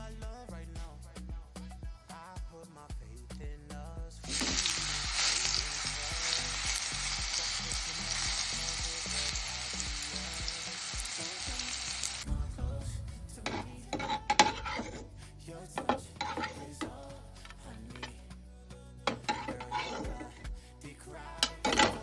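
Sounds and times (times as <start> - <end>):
background music: 0.0 - 22.0
vegetable sizzling in hot oil: 4.3 - 12.3.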